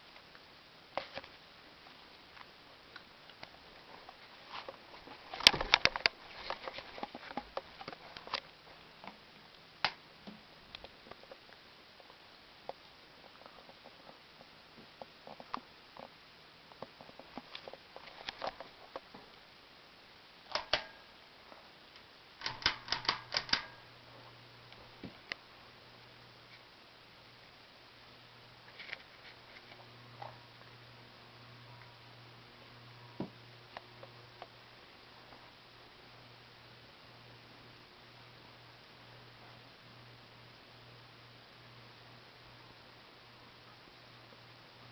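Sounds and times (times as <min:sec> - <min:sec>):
ceiling fan clicks and rattles: 0:02.0 - 0:19.4, 0:20.4 - 0:24.1.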